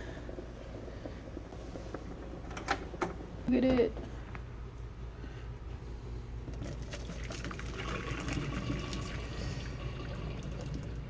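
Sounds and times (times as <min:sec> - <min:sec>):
water sloshing and pouring: 0:06.6 - 0:11.0.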